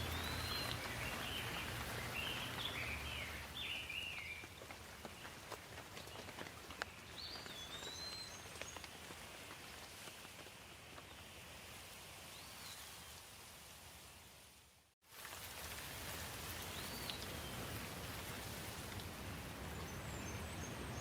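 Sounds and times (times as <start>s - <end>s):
bird calling: 0.0s - 4.5s
light rain pattering: 0.0s - 21.0s.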